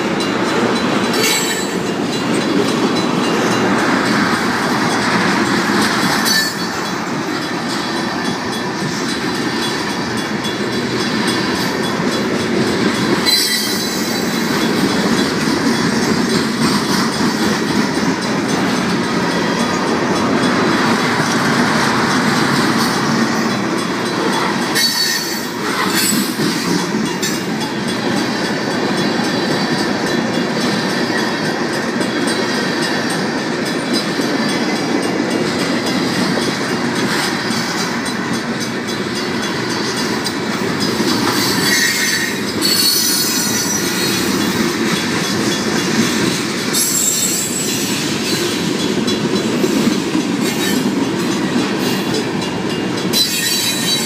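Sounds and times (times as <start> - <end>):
crossing warning bells ringing: 0.0 - 54.0
freight cars rumbling and clattering: 0.0 - 54.0
high-pitched wheel screech: 41.6 - 43.8.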